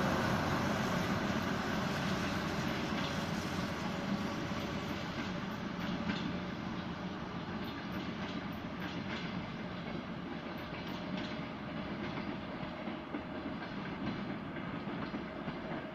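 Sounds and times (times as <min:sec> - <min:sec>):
train rolling along track: 0:00.0 - 0:15.9
wheels clicking over rail joints: 0:00.0 - 0:15.9.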